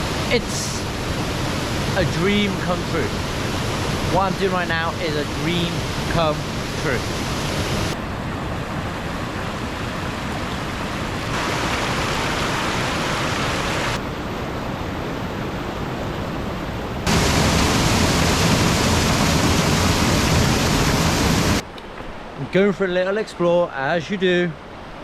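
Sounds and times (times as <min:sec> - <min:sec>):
waterfall rushing: 0:00.0 - 0:08.0, 0:09.6 - 0:14.0, 0:17.1 - 0:21.6.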